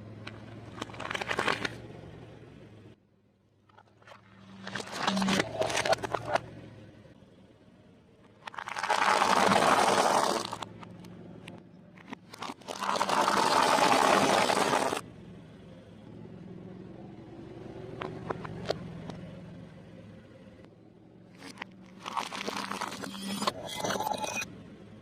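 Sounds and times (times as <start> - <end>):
food crunching under tire: 8.5 - 10.7, 21.4 - 23.3.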